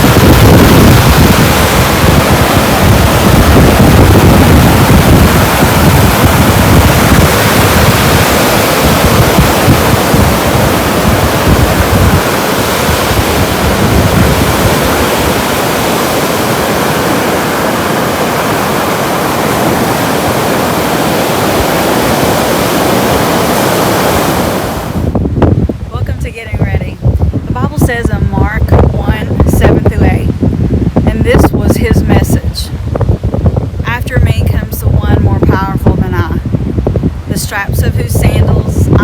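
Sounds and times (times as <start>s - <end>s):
rushing water: 0.0s - 25.8s
wind rumbling: 0.0s - 39.0s.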